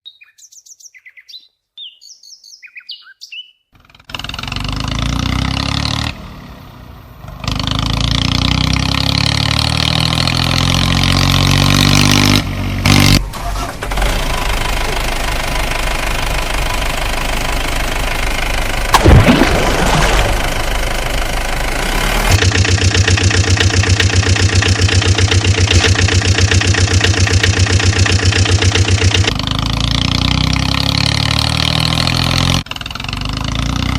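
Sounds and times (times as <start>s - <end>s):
faint bird chirps: 0.0s - 3.7s
engine starting and revving: 3.8s - 6.4s, 7.4s - 16.5s, 18.9s - 33.9s.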